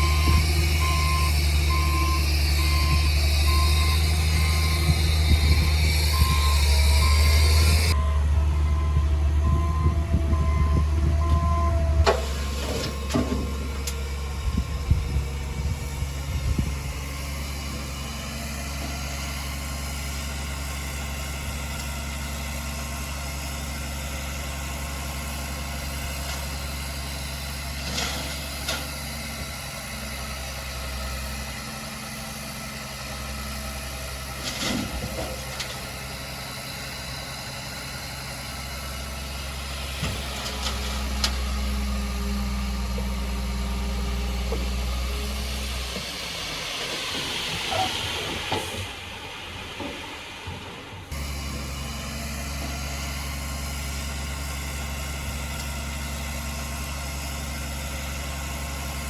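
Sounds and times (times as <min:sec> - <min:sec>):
heavy diesel engine idling: 0:00.0 - 0:59.0.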